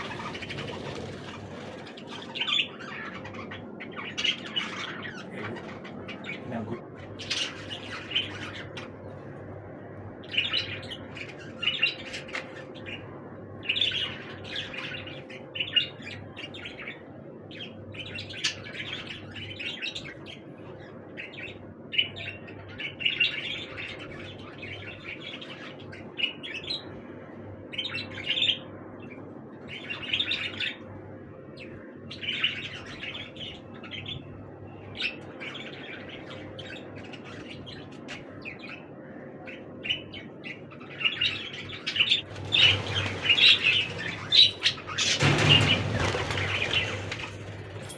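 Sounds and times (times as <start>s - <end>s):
budgerigars chirping: 0.0s - 8.7s, 39.5s - 47.3s.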